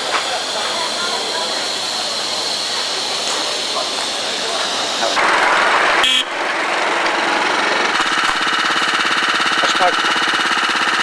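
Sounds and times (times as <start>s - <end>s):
steam hissing: 0.0s - 6.0s
small engine knocking: 0.0s - 11.0s.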